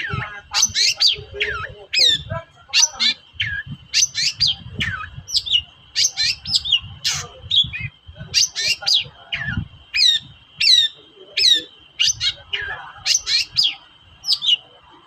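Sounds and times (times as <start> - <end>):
bird chirps and whistles: 2.8 - 14.6.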